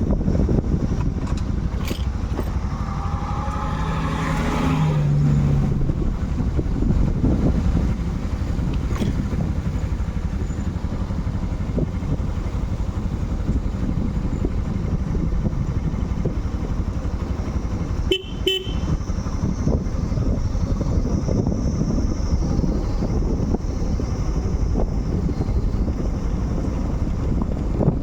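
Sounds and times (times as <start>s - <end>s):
motorcycle engine and road rumble: 0.0s - 28.0s
horn beeps: 18.1s - 19.0s.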